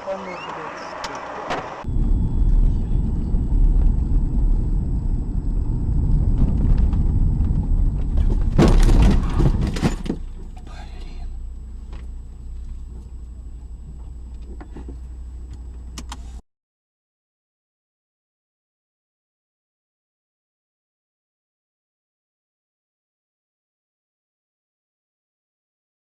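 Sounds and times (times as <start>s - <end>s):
car road and engine rumble: 0.0s - 16.4s
car collision bangs and clatter: 6.3s - 10.5s.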